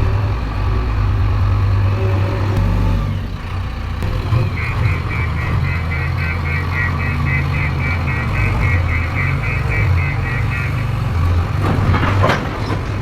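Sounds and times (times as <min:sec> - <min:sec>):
diesel machinery engine humming: 0:00.0 - 0:13.0
rapid high-pitched beeping: 0:04.0 - 0:11.0.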